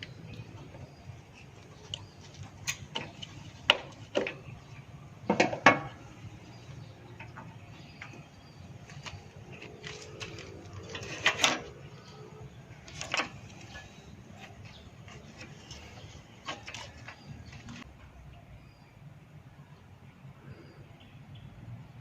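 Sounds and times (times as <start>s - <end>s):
objects clicking and knocking: 0.0s - 4.6s, 12.8s - 17.9s.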